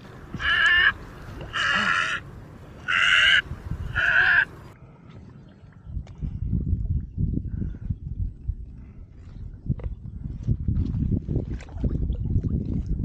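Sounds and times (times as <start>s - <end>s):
bird giving harsh calls: 0.3s - 2.2s, 2.8s - 4.6s.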